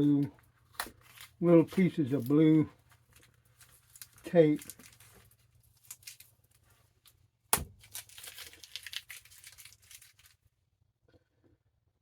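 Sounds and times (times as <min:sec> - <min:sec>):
tape peeling and tearing: 0:00.7 - 0:02.4, 0:03.1 - 0:10.4.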